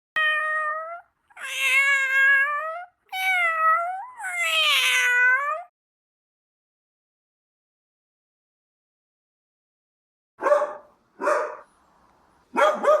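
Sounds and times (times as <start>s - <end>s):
cat meowing: 0.2s - 5.7s.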